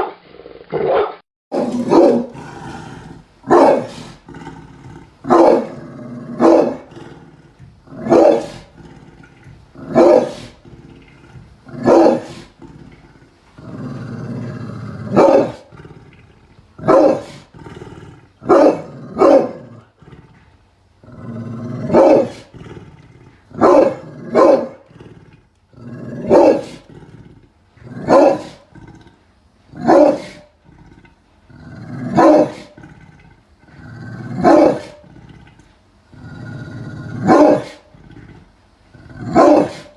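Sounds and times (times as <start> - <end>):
dog barking deeply: 0.8 - 2.4, 3.4 - 4.1, 5.2 - 6.9, 8.0 - 8.7, 9.8 - 10.5, 11.8 - 12.4, 15.1 - 15.7, 16.8 - 17.5, 18.4 - 19.8, 21.8 - 22.5, 23.6 - 24.8, 26.2 - 26.8, 27.9 - 28.7, 29.8 - 30.5, 32.0 - 32.8, 34.4 - 35.0, 37.2 - 37.8, 39.2 - 39.9
dog growling low: 1.7 - 39.9.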